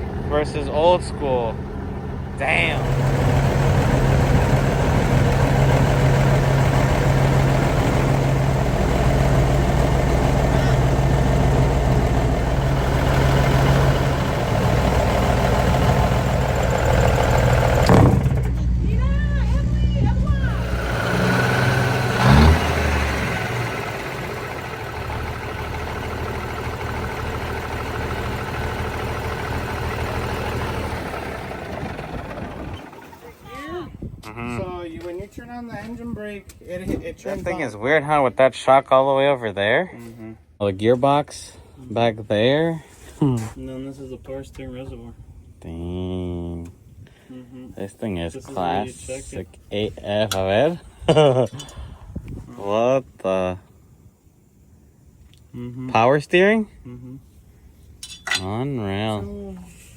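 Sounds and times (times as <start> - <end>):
diesel truck engine idling: 0.0 - 33.9.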